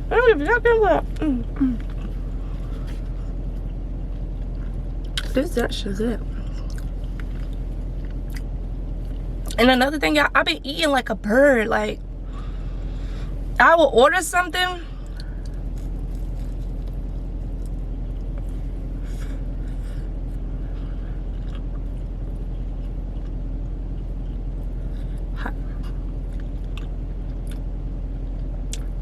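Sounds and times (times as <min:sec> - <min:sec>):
car engine idling: 0:00.0 - 0:29.0
chewing: 0:06.4 - 0:09.6, 0:20.8 - 0:27.6.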